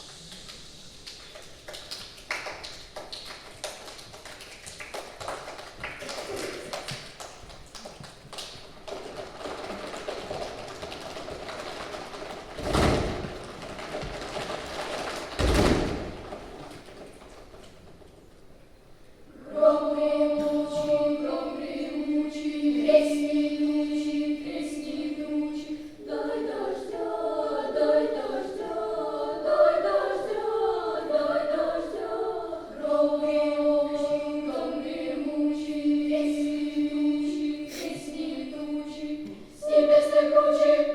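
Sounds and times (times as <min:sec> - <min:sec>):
children's choir singing: 0:19.3 - 0:40.9.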